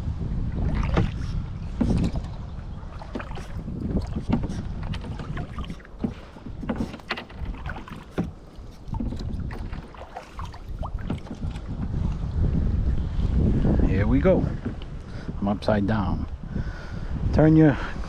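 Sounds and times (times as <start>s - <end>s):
wind rumble on microphone: 0.0s - 18.0s
paddle splashing in water: 0.5s - 12.3s.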